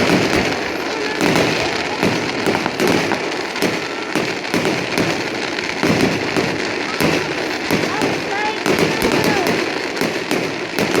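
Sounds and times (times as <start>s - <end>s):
fireworks bangs: 0.0s - 11.0s
fireworks crackling: 0.0s - 11.0s.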